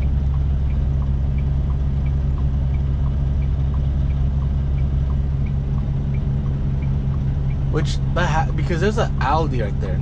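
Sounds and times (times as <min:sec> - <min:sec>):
turn signal ticking: 0:00.0 - 0:07.8
diesel engine low hum: 0:00.0 - 0:10.0.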